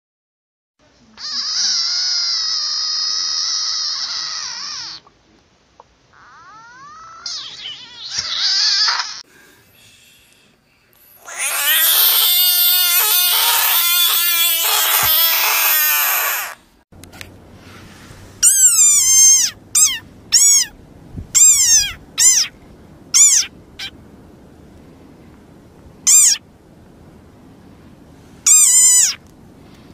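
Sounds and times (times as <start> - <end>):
frog screaming: 1.2 - 5.0, 6.1 - 9.2, 11.2 - 16.6, 18.4 - 20.7, 21.4 - 22.5, 23.1 - 23.9, 26.1 - 26.4, 28.5 - 29.2
frog squeaking: 1.2 - 5.1, 6.1 - 9.2, 11.2 - 16.6, 18.4 - 20.7, 21.4 - 23.9, 26.0 - 26.4, 28.5 - 29.2.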